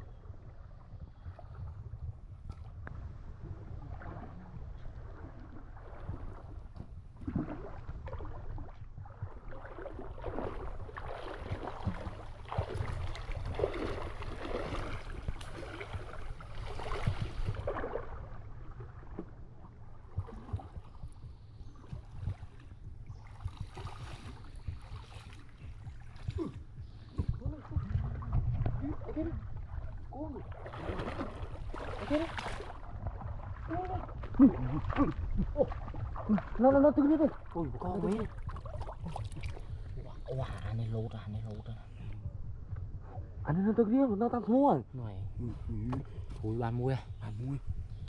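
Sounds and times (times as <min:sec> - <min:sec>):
steady low rumble: 0:00.0 - 0:48.0
river water splashing: 0:03.3 - 0:40.7.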